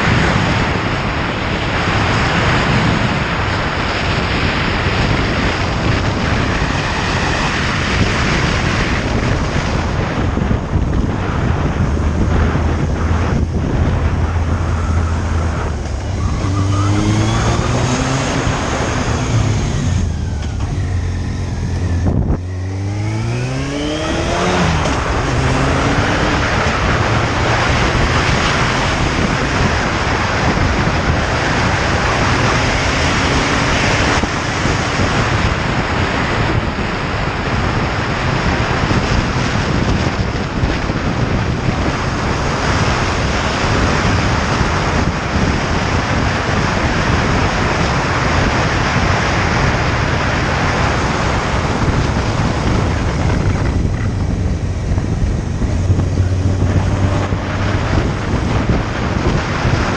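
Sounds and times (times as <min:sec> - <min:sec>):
motorcycle engine accelerating: 0:00.0 - 0:59.9
wind noise at speed: 0:00.0 - 0:59.9.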